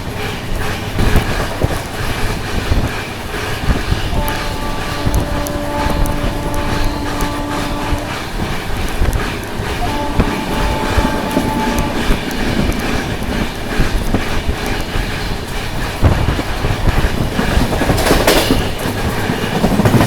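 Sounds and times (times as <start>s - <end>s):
rail joint clicks: 0.0s - 20.0s
train wheels on track: 0.0s - 20.0s
train horn: 4.0s - 16.4s.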